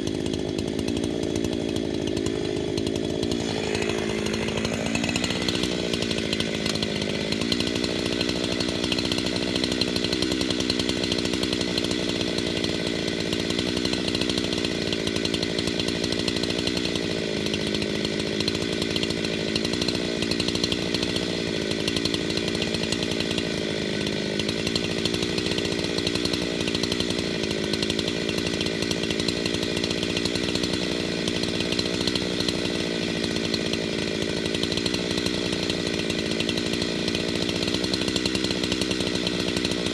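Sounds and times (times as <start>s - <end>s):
chainsaw sawing through log: 0.0s - 39.9s.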